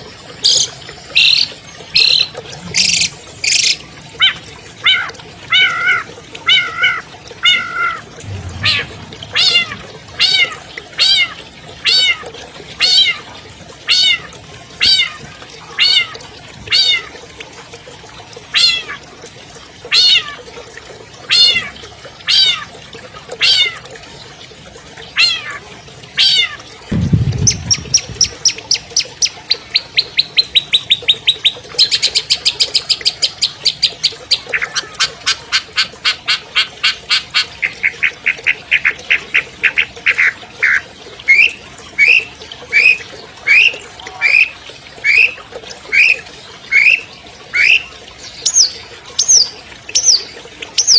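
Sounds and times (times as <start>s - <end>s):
low thump: 8.3s - 10.1s, 26.9s - 28.5s
bird whistled calls and trill: 41.3s - 45.4s, 46.0s - 47.9s.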